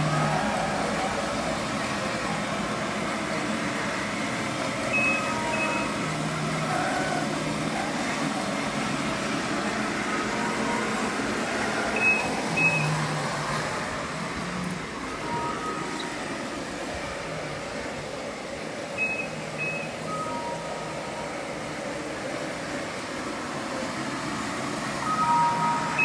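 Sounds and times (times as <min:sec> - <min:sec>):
floor scrubber machine hum: 0:00.0 - 0:26.0
short high beeps: 0:04.9 - 0:05.9, 0:12.0 - 0:13.0, 0:19.0 - 0:21.0.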